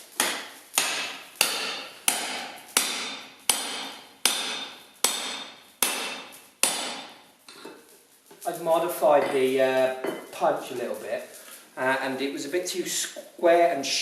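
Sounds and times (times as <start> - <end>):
hammer striking metal punch: 0.2 - 7.1.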